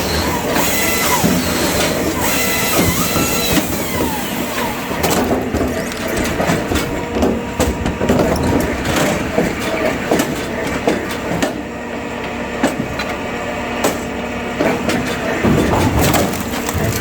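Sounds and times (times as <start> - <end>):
machine running: 0.0 - 10.0, 15.2 - 17.0
firewood knocking and cracking: 14.6 - 17.0.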